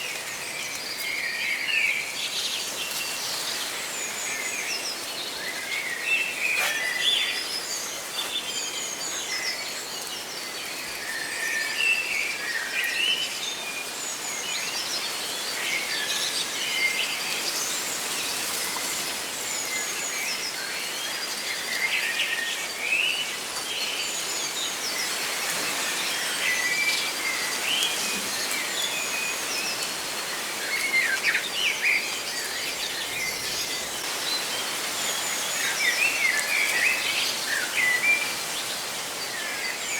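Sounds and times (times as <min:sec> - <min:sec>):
leaves rustling in wind: 0:00.0 - 0:39.9
small birds chirping: 0:00.6 - 0:11.0.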